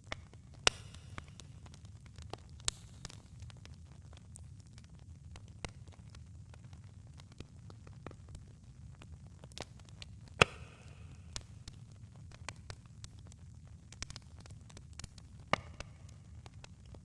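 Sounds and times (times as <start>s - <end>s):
burning wood popping and snapping: 0.0s - 17.0s.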